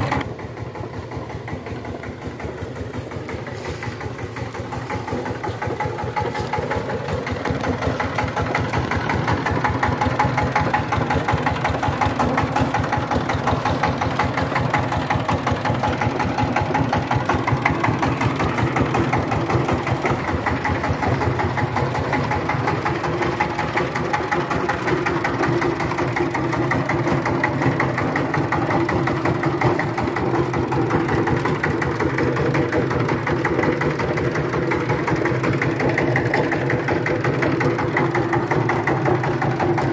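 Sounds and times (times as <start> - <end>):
power tiller engine running: 0.0 - 39.9.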